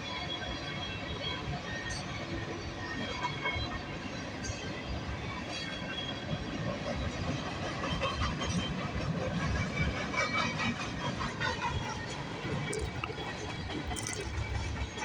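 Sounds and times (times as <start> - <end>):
steel wheels clattering on rail: 4.4 - 12.6.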